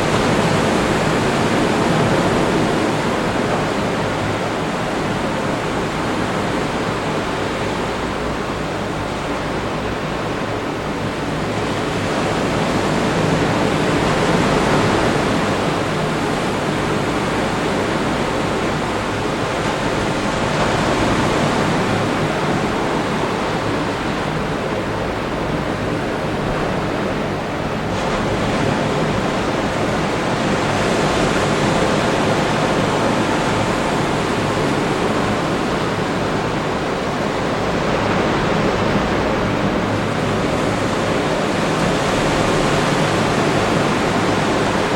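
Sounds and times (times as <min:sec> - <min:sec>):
surf breaking on beach: 0:11.5 - 0:44.9.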